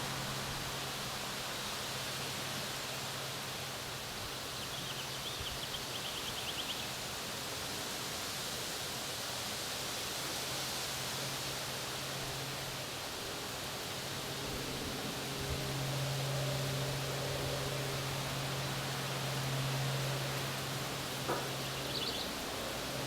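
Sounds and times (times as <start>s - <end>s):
small bird trilling: 21.6s - 22.4s.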